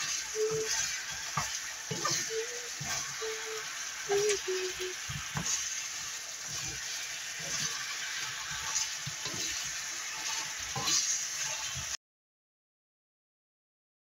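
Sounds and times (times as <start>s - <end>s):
wooden spatula knocking and scraping: 0.0s - 3.0s, 5.1s - 5.6s
meat sizzling in a pan: 0.0s - 12.0s.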